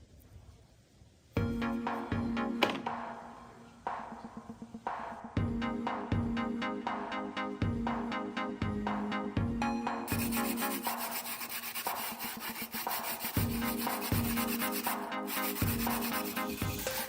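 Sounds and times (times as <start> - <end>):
electronic music with beat: 1.4 - 17.0
abrasive sanding strokes: 10.1 - 17.0.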